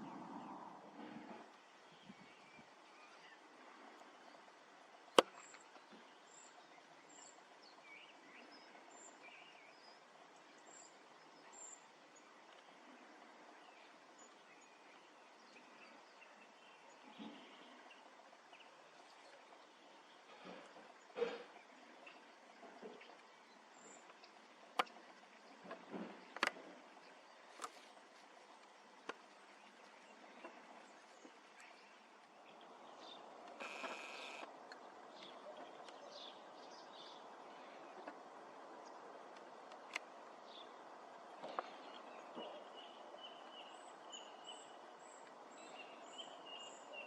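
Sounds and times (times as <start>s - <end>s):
faint outdoor hiss: 0.0s - 47.0s
small birds chirping: 0.0s - 47.0s
faint bird chirps: 29.6s - 34.5s
brief whirring whine: 33.6s - 34.5s.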